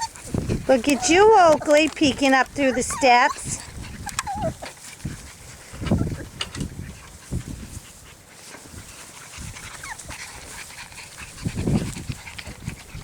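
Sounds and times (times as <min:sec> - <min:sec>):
puppy whining: 0:00.0 - 0:04.8, 0:05.8 - 0:06.4, 0:09.7 - 0:10.2.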